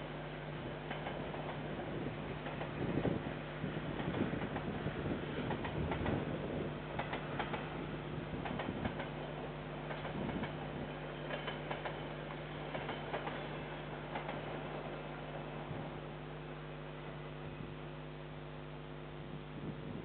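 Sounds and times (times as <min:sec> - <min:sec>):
steady electrical hum: 0:13.5 - 0:20.0.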